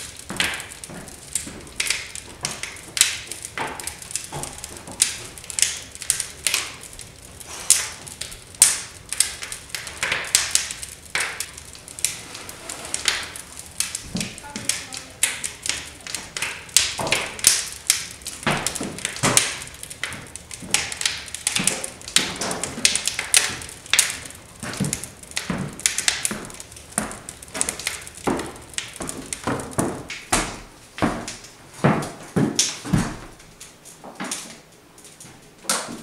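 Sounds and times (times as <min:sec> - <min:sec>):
rustling: 0:09.0 - 0:15.2
knocks on wooden boards: 0:28.3 - 0:33.3.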